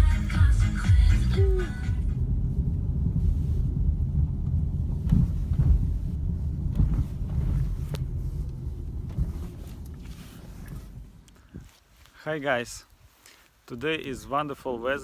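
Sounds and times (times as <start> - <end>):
car driving rumble from inside: 0.0 - 11.8.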